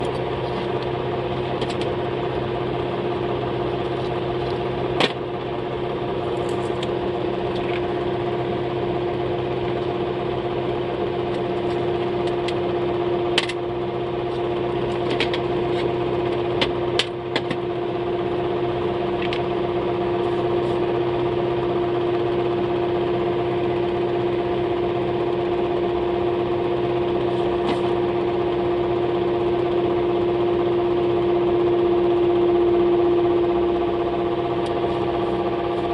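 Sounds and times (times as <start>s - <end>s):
steady machine hum: 0.0s - 35.9s.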